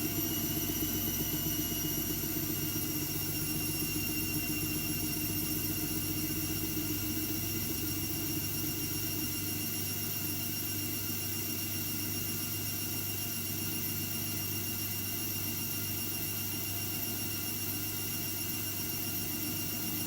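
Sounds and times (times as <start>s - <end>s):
washing machine motor hum: 0.0s - 10.5s.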